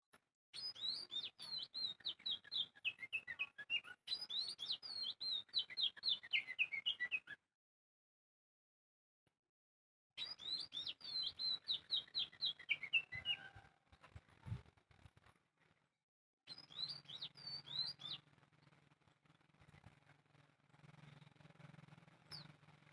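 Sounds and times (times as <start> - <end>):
songbird chirping: 0.6 - 7.4, 10.2 - 14.6, 16.5 - 20.1.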